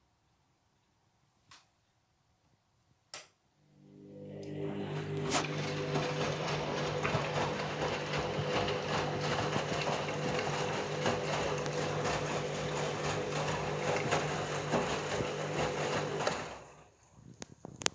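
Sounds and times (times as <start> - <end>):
washing machine motor hum: 3.6 - 17.0
water rushing and swishing: 4.6 - 16.8.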